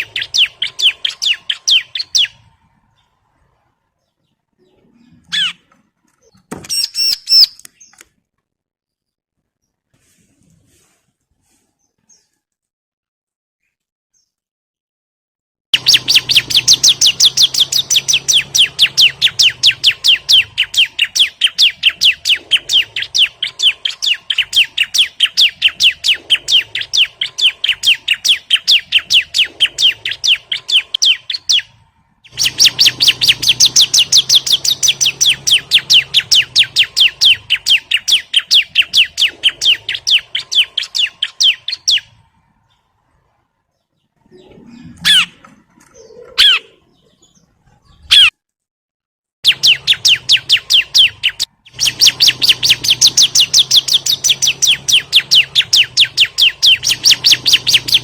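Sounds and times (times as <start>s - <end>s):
bird high chipping notes: 0.0s - 3.5s, 4.7s - 8.0s, 15.8s - 42.9s, 49.4s - 58.0s.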